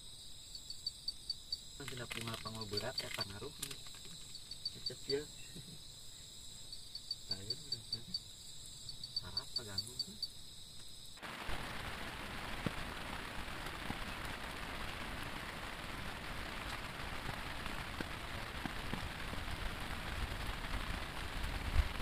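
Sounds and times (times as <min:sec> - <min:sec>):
raindrop ticks: 0:01.8 - 0:05.8, 0:06.9 - 0:08.2, 0:10.8 - 0:22.0
heavy rain falling: 0:11.2 - 0:22.0.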